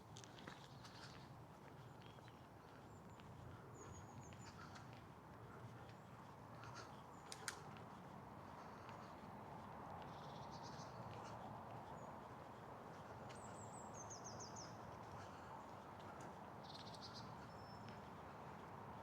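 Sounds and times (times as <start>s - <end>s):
small songbirds chirping: 0.6s - 5.0s, 10.0s - 18.6s.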